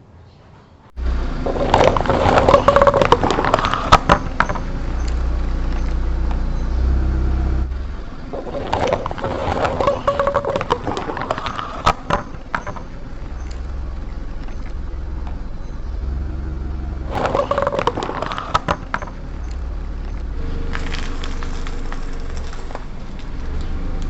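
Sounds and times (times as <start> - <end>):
low car rumble: 0.9 - 24.0
plastic cracking: 1.5 - 6.5, 7.7 - 16.0, 17.1 - 24.0
tyre crunching plastic lighters: 17.1 - 24.0.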